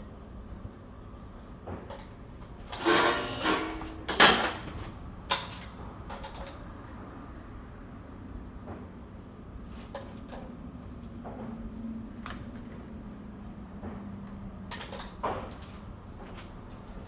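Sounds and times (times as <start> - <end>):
tools scraping clatter: 2.0 - 6.5.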